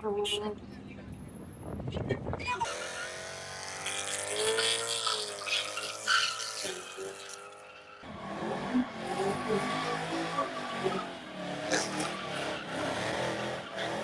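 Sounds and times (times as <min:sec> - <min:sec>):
uneven rumble of engines: 0:00.0 - 0:14.0
tyre squeal: 0:04.5 - 0:08.1
sports car engine revving high: 0:08.0 - 0:14.0.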